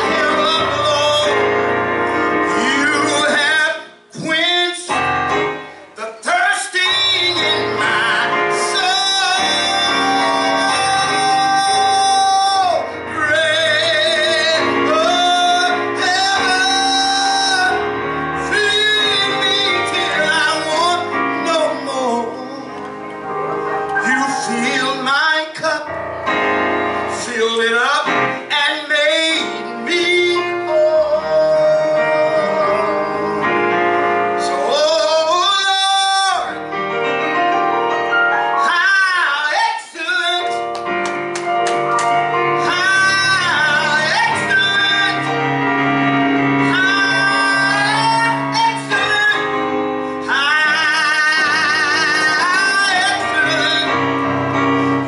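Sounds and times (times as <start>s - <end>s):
person singing with vibrato: 0.0s - 23.0s, 23.8s - 26.3s, 27.0s - 36.7s, 42.3s - 55.0s
piano accompaniment: 0.0s - 55.0s.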